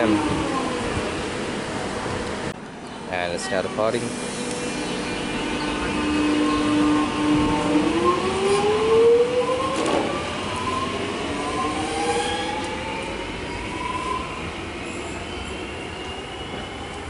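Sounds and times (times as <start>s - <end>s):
electric train motor whine: 3.7s - 17.0s.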